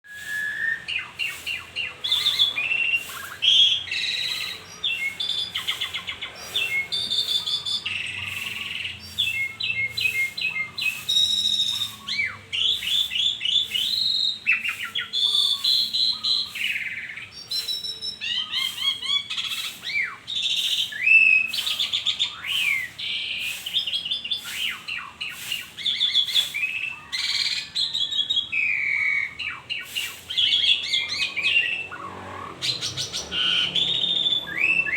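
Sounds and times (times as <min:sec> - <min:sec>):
starling singing: 0:00.0 - 0:34.9.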